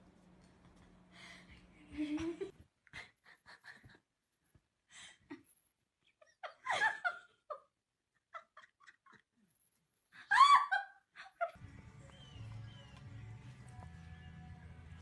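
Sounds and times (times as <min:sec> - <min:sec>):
person giggling: 0:01.8 - 0:04.0, 0:06.1 - 0:09.4.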